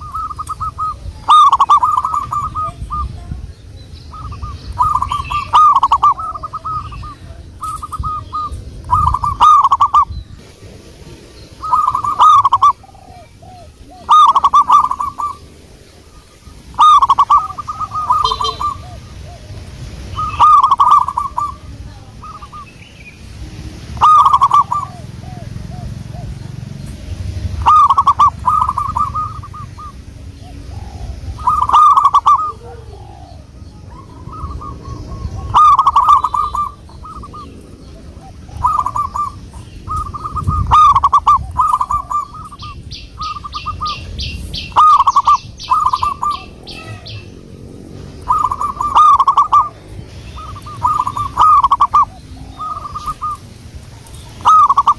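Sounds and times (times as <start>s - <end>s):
small bird ticking chirp: 0.0s - 3.1s, 3.8s - 10.2s, 16.7s - 19.0s
dove cooing: 0.0s - 54.9s.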